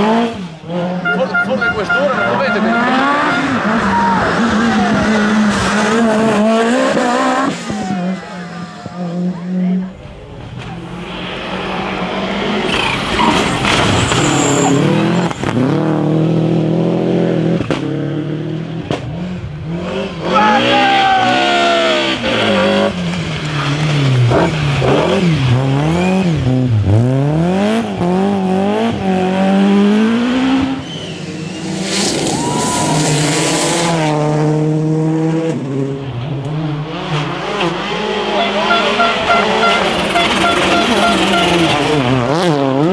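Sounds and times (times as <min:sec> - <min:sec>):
tyres skidding: 0:00.0 - 0:09.0, 0:09.8 - 0:17.2, 0:18.9 - 0:34.3, 0:35.9 - 0:42.9
rally car engine revving: 0:00.0 - 0:42.9.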